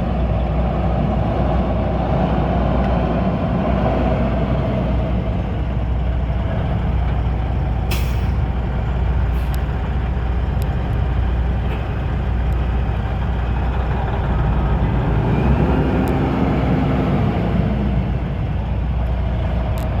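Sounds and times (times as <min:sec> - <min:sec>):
diesel truck engine running: 0:00.0 - 0:20.0
air brake hiss: 0:07.9 - 0:08.4.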